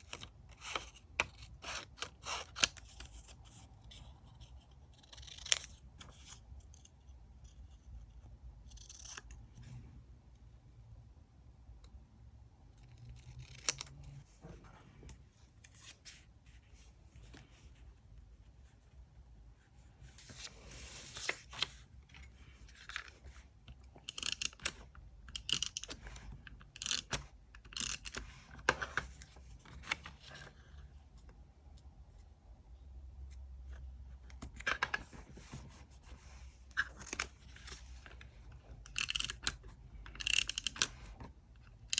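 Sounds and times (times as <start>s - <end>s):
scissors cutting paper: 24.0s - 26.0s.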